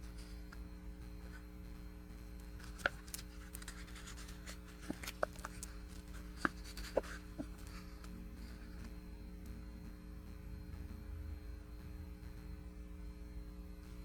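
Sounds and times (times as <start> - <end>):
low electrical hum: 0.0 - 14.0
small objects clicking and tapping: 2.6 - 7.7.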